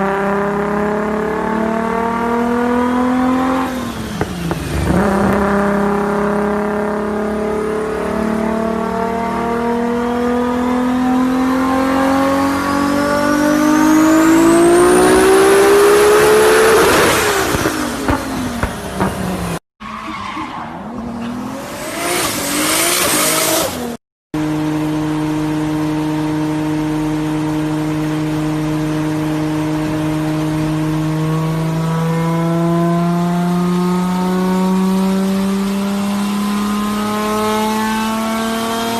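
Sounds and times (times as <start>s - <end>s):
car engine revving: 0.0s - 19.6s, 20.2s - 38.9s.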